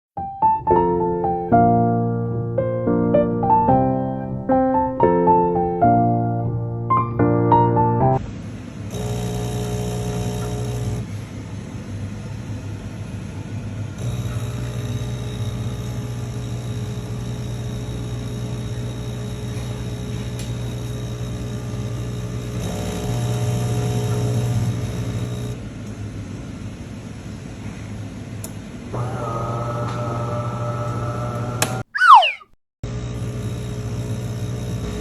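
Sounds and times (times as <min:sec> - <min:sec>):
coffee machine humming: 0:08.9 - 0:11.1, 0:14.0 - 0:25.6, 0:29.0 - 0:31.8, 0:32.9 - 0:35.0.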